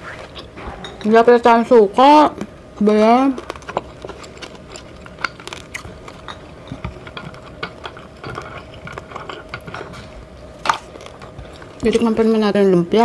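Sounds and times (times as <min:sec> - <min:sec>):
faint steady hum: 0:00.0 - 0:13.0
chewing food crunches: 0:03.2 - 0:11.9.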